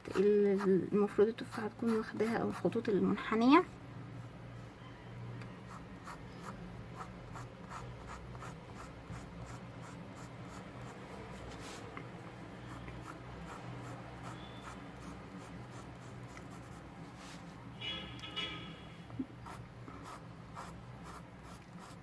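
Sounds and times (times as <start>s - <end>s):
pencil shading on paper: 0.0s - 2.9s, 5.7s - 11.8s, 12.6s - 16.9s, 19.4s - 22.0s.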